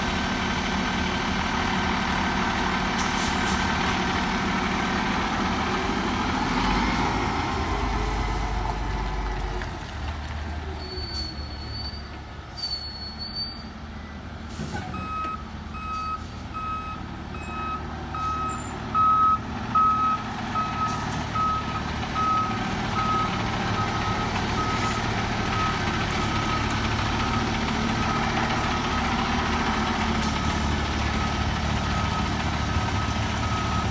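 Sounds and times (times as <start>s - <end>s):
diesel engine running: 0.0s - 11.6s, 14.5s - 33.9s
reversing alarm beeping: 15.0s - 29.1s, 30.3s - 33.9s.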